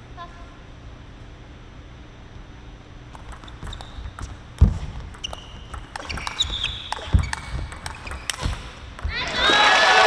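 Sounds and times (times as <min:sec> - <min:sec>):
table tennis ball clicks: 0:03.1 - 0:09.3
heavy thumps: 0:03.2 - 0:09.2
shoe squeaks on floor: 0:03.4 - 0:08.6.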